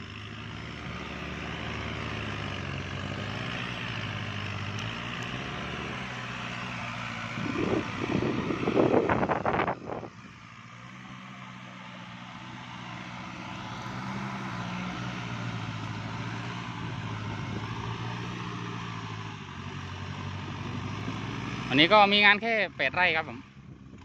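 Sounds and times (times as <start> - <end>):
tractor diesel engine running: 0.0 - 24.0
wind on microphone: 7.4 - 10.1.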